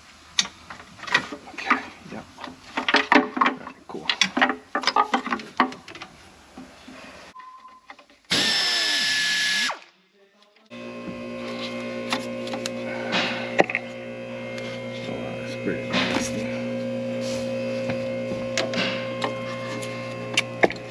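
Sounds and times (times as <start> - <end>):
power tool running: 8.3 - 9.8, 10.7 - 20.9
electrical hum: 10.7 - 20.9.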